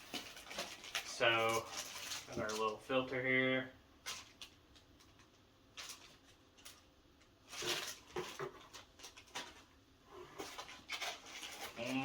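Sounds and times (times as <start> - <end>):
packaging rustling: 0.0 - 3.0, 4.0 - 12.0.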